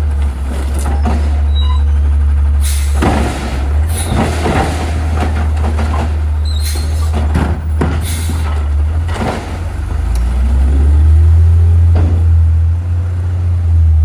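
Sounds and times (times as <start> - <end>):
garbage truck diesel engine rumble: 0.0 - 14.0.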